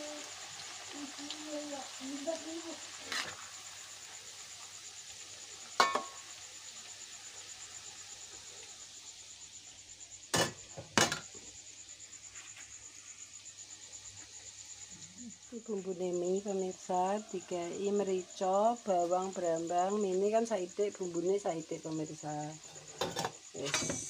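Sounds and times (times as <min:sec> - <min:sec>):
oil sizzling in a wok: 0:00.0 - 0:24.0
kitchen utensils knocking: 0:05.8 - 0:06.2.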